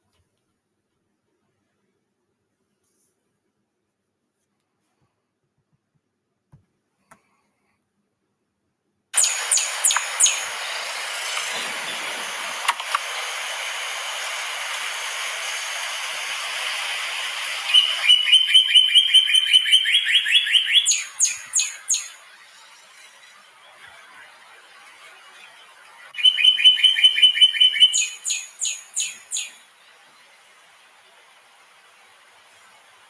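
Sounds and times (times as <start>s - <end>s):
bird singing: 9.2s - 33.0s
steady background hiss: 9.2s - 33.0s.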